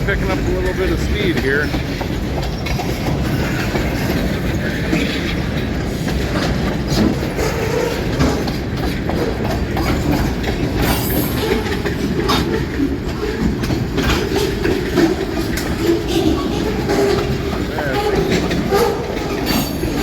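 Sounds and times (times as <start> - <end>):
rail rumble: 0.0 - 20.0
wheels clacking over track: 0.0 - 20.0
wheel squeal: 9.1 - 20.0.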